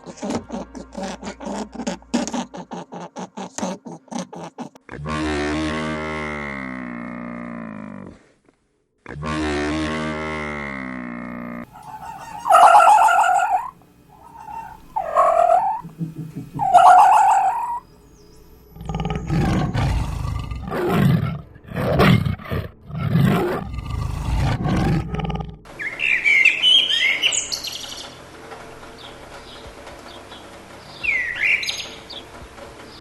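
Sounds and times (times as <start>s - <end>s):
loud pitched animal calls: 11.7s - 17.9s
bird chirping: 11.7s - 18.8s, 25.8s - 28.2s, 29.0s - 32.2s
rough low animal roars: 18.8s - 25.7s.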